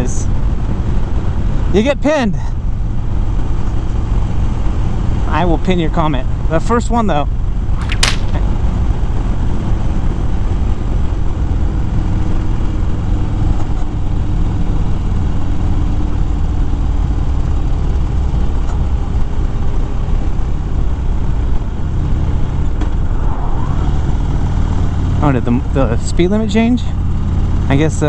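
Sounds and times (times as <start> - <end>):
wind noise on microphone: 21.2 - 25.7.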